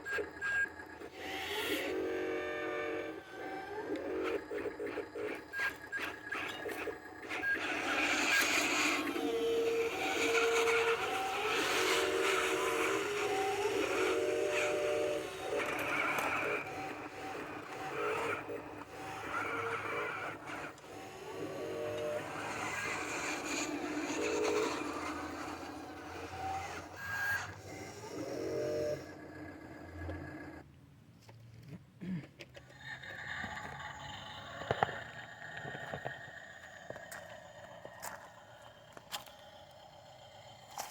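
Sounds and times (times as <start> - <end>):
whining tones stepping pitch: 0.0 - 30.6
truck engine hum: 8.9 - 30.6.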